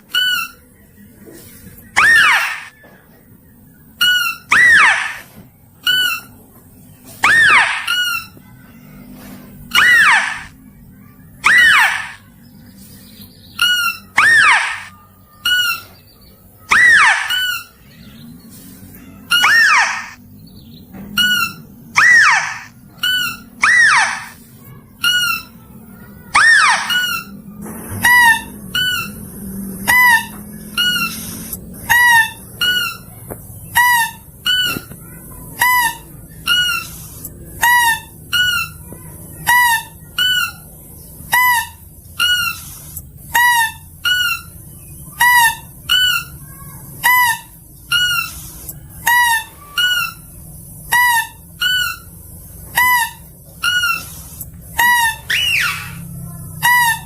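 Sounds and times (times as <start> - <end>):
mouse-deer squeaky nasal call: 2.0 - 2.7, 4.0 - 5.3, 7.2 - 8.4, 9.7 - 10.5, 11.4 - 12.2, 13.6 - 15.9, 16.7 - 17.7, 19.3 - 20.2, 21.2 - 24.4, 26.3 - 27.3.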